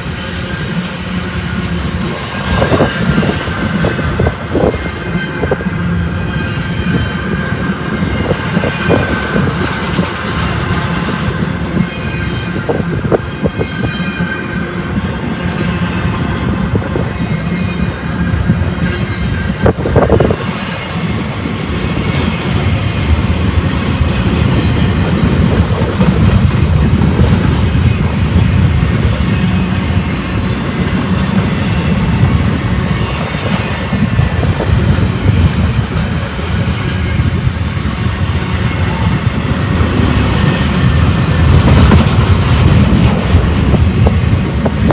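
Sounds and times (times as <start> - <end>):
freight train rumbling past: 0.0 - 44.9
wheels clattering over rails: 8.1 - 11.8.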